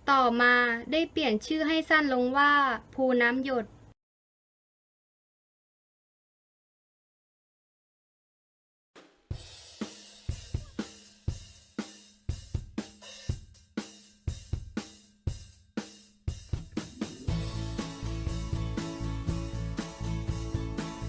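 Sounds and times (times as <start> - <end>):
drum kit beat with cymbals: 9.0 - 21.0
bass and other instruments: 16.3 - 21.0.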